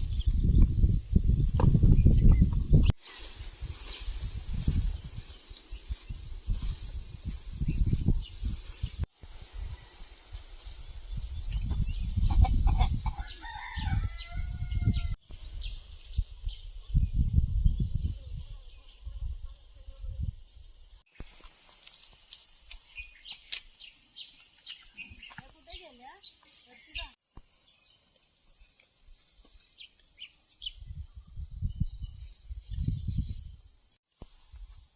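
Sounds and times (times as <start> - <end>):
steady high-pitched hiss: 0.0 - 16.8, 20.0 - 34.9
rooster crowing: 9.4 - 10.4, 12.6 - 15.2.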